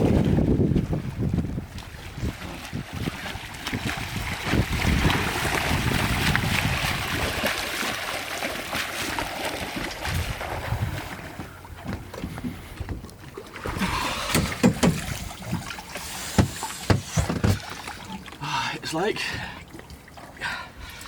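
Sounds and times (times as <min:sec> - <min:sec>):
wind on microphone: 0:00.0 - 0:07.6, 0:09.8 - 0:13.1
water splashing from swimming: 0:00.0 - 0:21.0.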